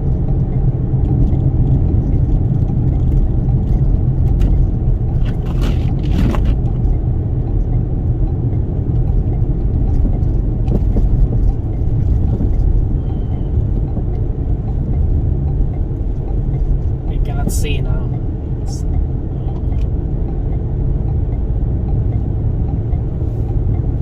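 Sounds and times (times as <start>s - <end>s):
road and wind noise rumble: 0.0s - 24.0s.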